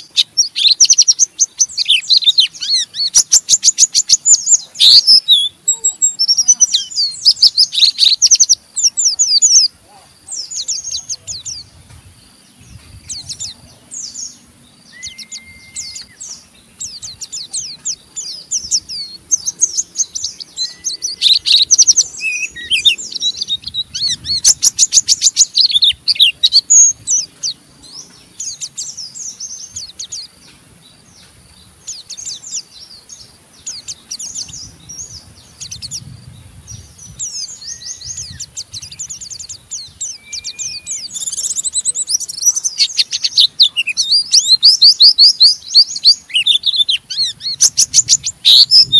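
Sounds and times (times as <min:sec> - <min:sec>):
bird twittering song: 0:00.0 - 0:48.9
brief level whistles: 0:15.0 - 0:16.1.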